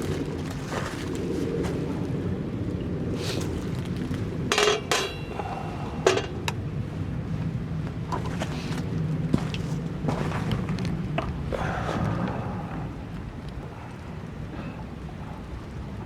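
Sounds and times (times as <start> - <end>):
steady low rumble: 0.0 - 16.0
metal cookware clinking: 4.5 - 5.3.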